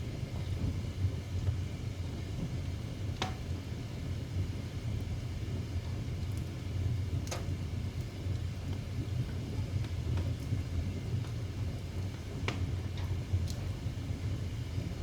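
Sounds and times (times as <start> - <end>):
fire rumbling: 0.0 - 15.0
burning wood crackling and popping: 7.2 - 15.0.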